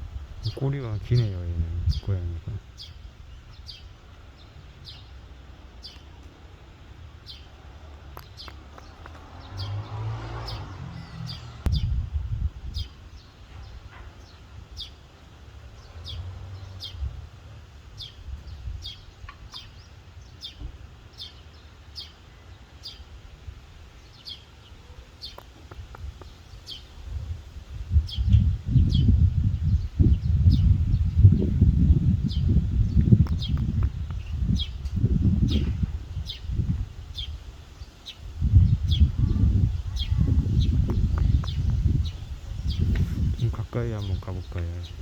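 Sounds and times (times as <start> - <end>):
small bird chirping: 10.5 - 12.0, 27.9 - 45.0
low uneven rumble: 25.9 - 45.0.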